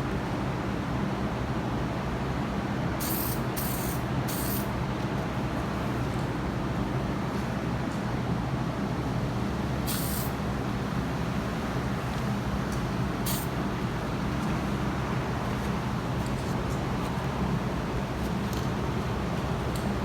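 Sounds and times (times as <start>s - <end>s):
spray-paint can spraying: 3.0s - 4.7s, 9.9s - 10.4s, 13.3s - 13.5s.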